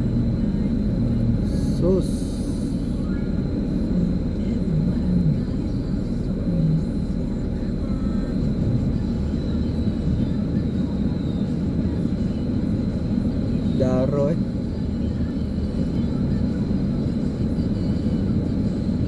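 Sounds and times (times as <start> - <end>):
faint voices: 0.0 - 13.7
vehicle engine rumbling: 0.0 - 19.0.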